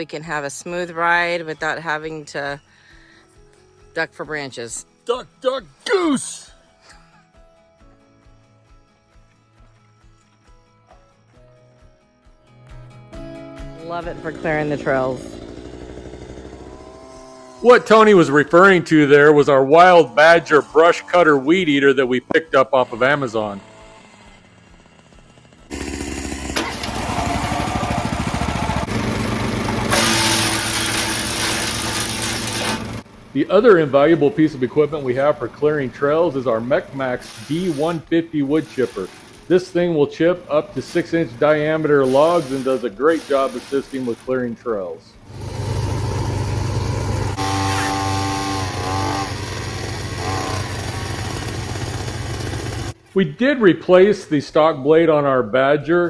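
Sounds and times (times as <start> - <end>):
brush cutter running at high revs: 13.8 - 44.5, 45.2 - 53.0
wood chipping with whine: 13.8 - 53.0.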